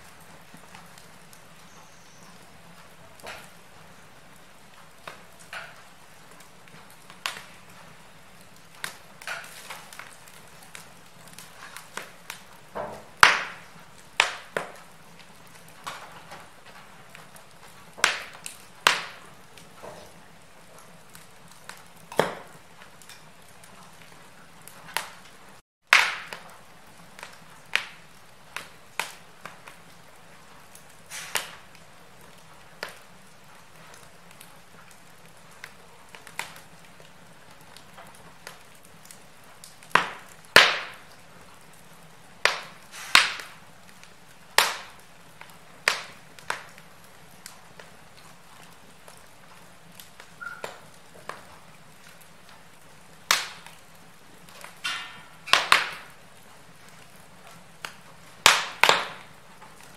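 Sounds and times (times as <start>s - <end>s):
faint steady hiss: 0.0s - 59.9s
wood fire crackling: 0.0s - 59.9s.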